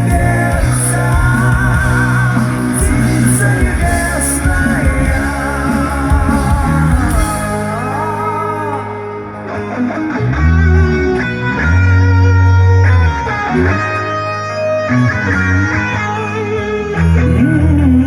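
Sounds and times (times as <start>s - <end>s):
bass notes: 0.0s - 18.0s
electric guitar melody: 0.0s - 18.0s.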